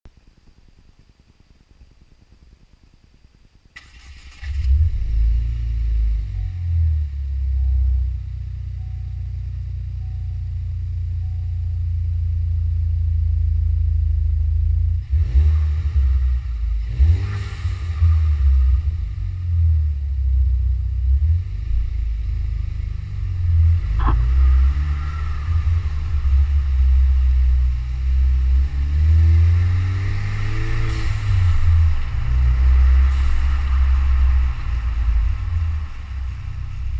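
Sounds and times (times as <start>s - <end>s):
car engine rumbling and revving: 3.8s - 36.9s.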